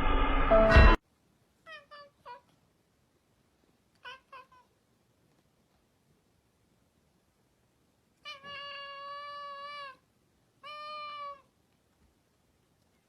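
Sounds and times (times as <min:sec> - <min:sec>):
cat meowing: 0:01.6 - 0:02.6, 0:04.0 - 0:04.8, 0:08.2 - 0:11.5.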